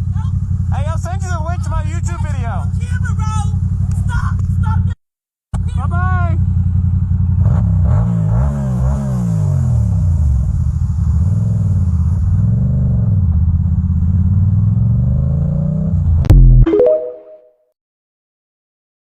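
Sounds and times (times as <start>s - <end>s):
motorcycle engine revving while riding: 6.4s - 16.2s.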